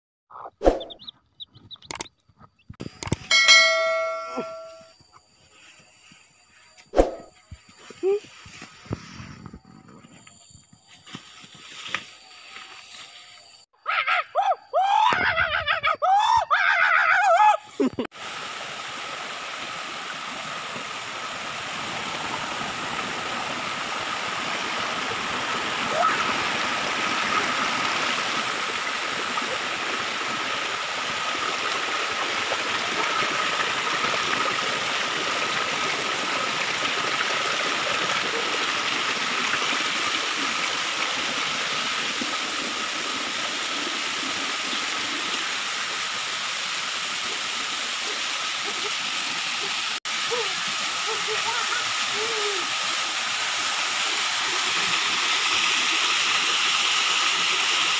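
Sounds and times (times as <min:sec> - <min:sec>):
waterfall rushing: 0:18.2 - 0:57.9.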